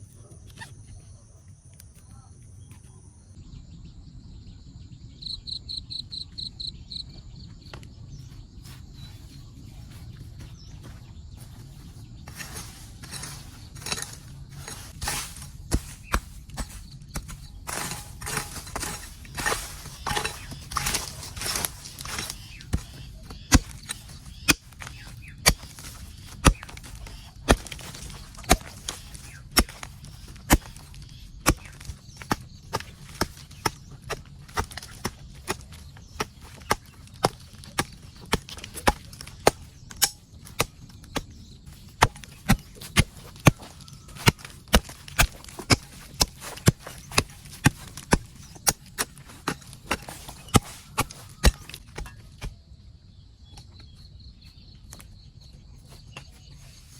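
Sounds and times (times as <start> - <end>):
tool striking wood: 12.3 - 52.5.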